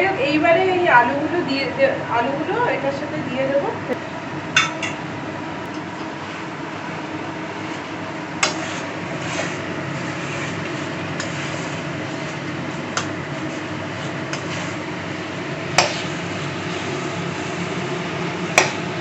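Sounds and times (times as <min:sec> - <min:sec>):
steady cooking hum: 0:00.0 - 0:19.0
food frying: 0:06.1 - 0:19.0.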